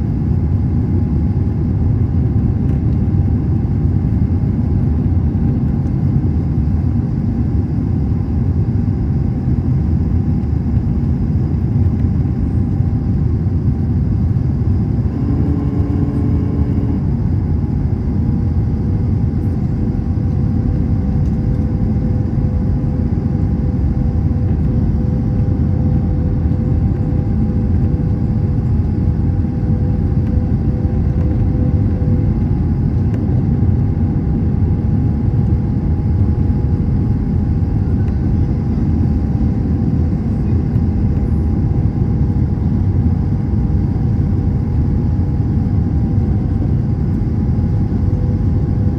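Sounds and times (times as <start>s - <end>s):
engine and airflow rumble: 0.0s - 48.9s
faint constant whine: 0.0s - 48.9s.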